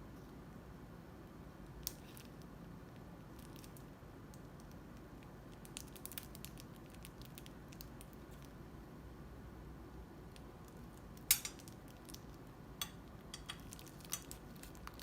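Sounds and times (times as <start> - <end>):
faint crackles and clicks: 1.6 - 8.6, 10.3 - 15.0.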